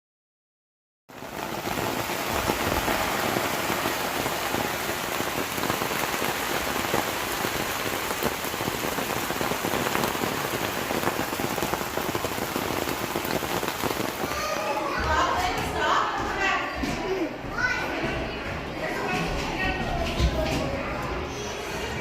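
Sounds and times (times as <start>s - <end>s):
steady rain falling: 1.1s - 16.5s.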